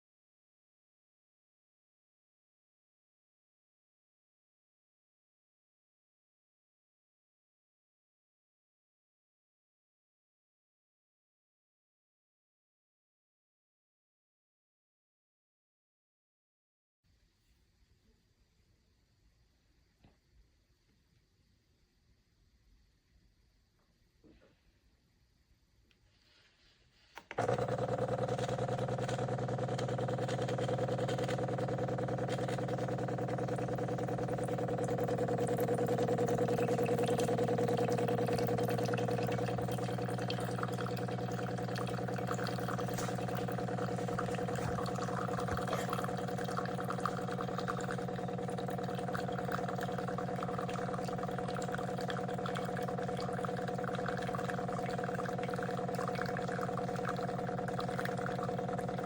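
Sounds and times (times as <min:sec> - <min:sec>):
espresso machine humming: 0:27.2 - 0:59.0.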